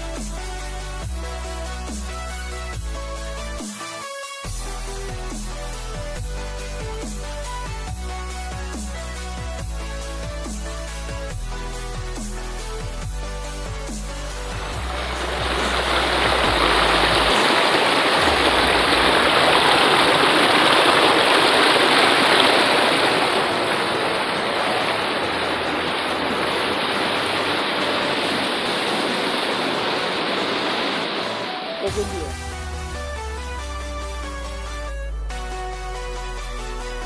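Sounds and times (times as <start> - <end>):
stream rushing over rocks: 14.5 - 31.9.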